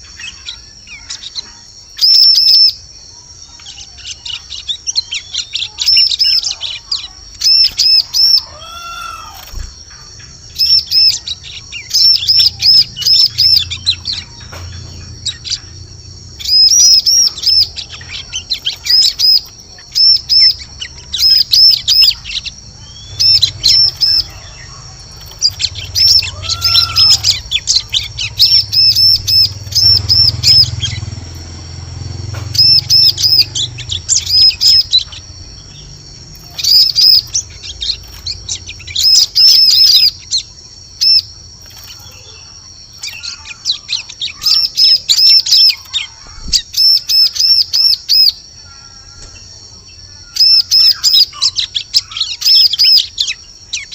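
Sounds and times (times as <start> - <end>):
bird high-pitched chirps: 0.0 - 53.9.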